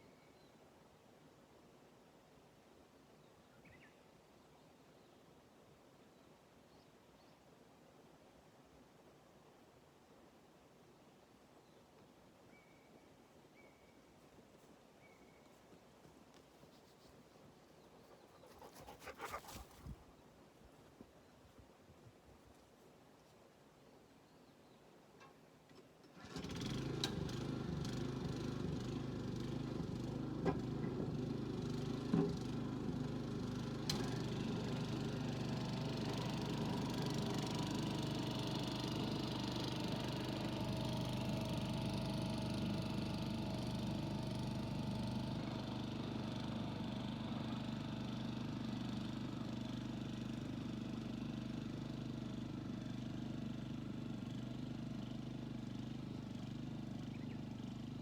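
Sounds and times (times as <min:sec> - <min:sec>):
diesel tiller engine running: 0:26.2 - 0:58.0.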